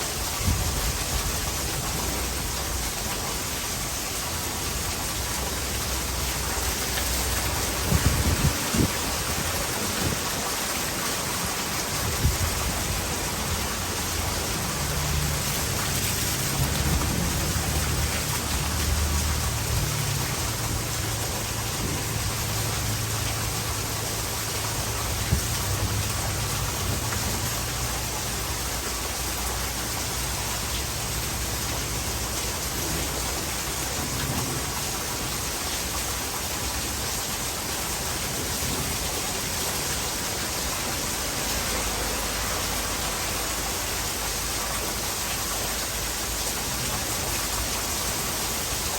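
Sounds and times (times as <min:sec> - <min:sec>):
heavy rain: 0:00.0 - 0:48.9
thunder rumbling: 0:05.3 - 0:28.5.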